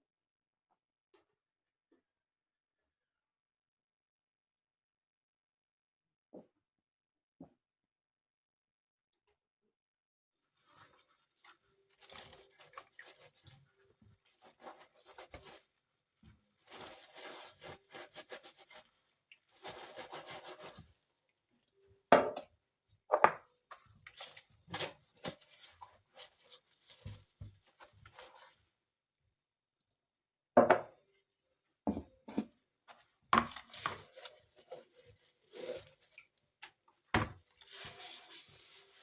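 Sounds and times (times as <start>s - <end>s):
scraping and rubbing strokes: 10.6s - 15.8s, 16.6s - 21.0s, 33.6s - 36.2s, 37.6s - 39.0s.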